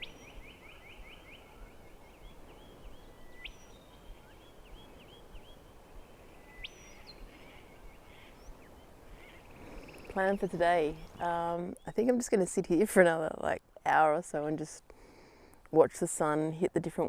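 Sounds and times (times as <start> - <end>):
bird singing: 0.0 - 12.4
faint background noise: 0.0 - 17.0.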